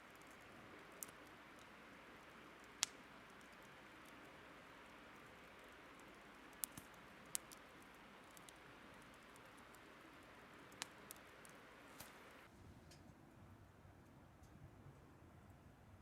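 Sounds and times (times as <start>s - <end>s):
fire popping: 0.0s - 12.5s
burning wood crackling: 0.0s - 13.0s.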